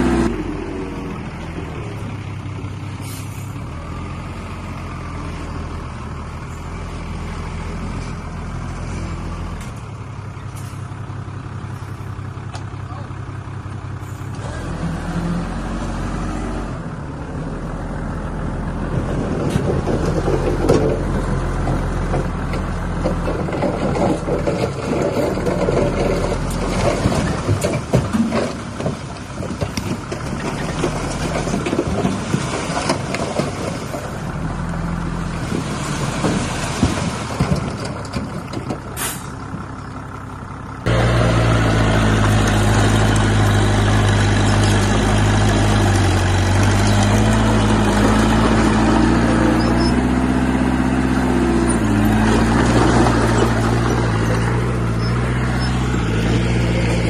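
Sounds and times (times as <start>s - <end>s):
diesel machinery running: 0.0s - 57.0s
scraping and clattering: 19.4s - 34.2s, 35.4s - 39.0s, 51.5s - 57.0s.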